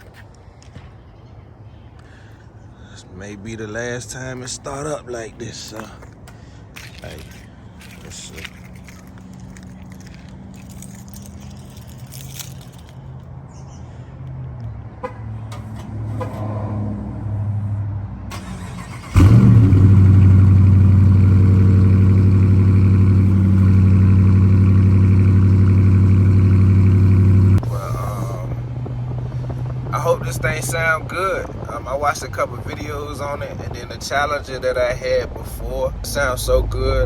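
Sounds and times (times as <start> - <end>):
car engine starting and idling: 15.4 - 34.2.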